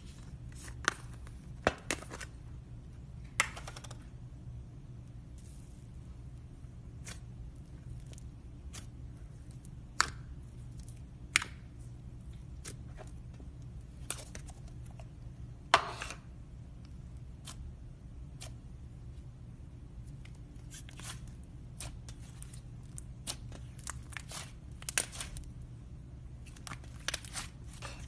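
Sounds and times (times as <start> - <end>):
low steady hum: 0.0 - 28.0
slime crackle: 20.6 - 25.6, 26.4 - 28.0.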